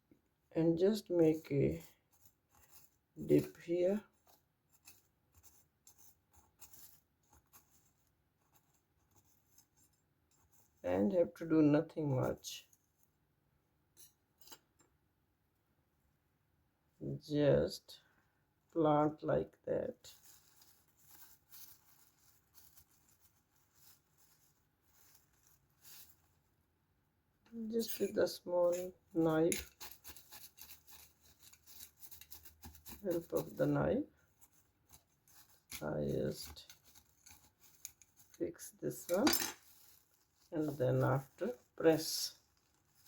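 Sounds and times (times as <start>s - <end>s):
fingers digging in potting mix: 27.7s - 43.0s.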